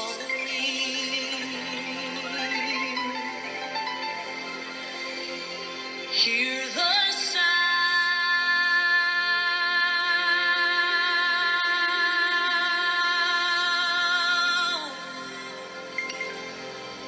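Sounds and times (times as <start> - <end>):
worship song playing: 0.0 - 17.0.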